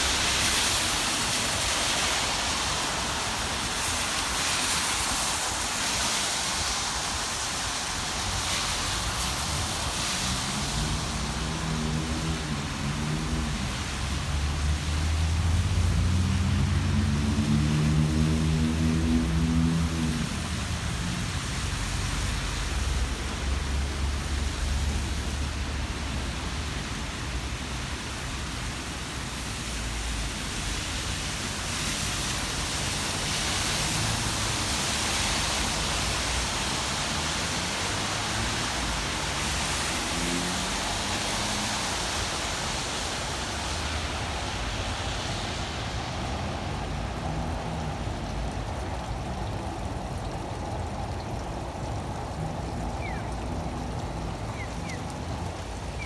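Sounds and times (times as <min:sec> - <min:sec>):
rain hissing: 0:00.0 - 0:56.0
traffic on wet street: 0:00.0 - 0:56.0.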